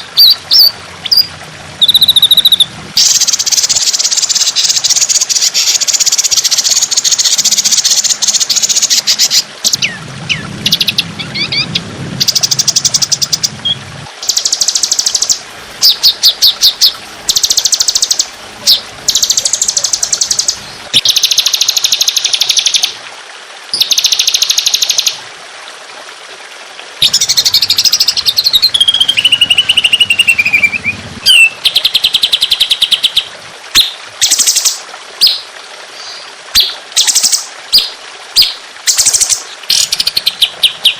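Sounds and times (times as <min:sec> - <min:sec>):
songbird trilling: 0:00.2 - 0:05.7, 0:06.3 - 0:22.8, 0:27.0 - 0:34.6.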